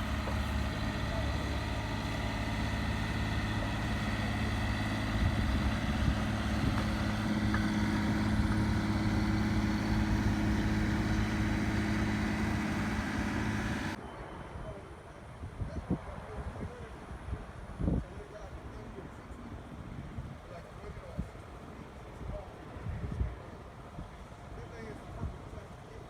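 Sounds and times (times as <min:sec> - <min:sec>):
heavy diesel engine running: 0:00.0 - 0:14.0.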